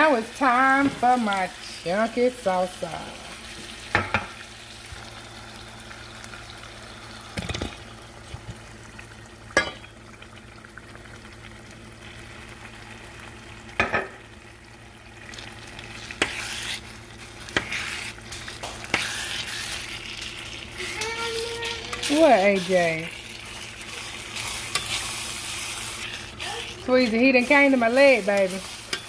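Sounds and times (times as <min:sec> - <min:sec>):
meat sizzling in a pan: 0:00.0 - 0:29.0
spatula stirring in pan: 0:15.2 - 0:29.0.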